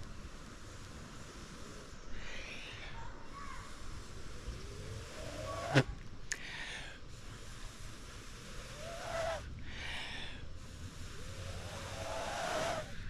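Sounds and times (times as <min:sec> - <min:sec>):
person blowing long breaths: 0:06.4 - 0:13.0.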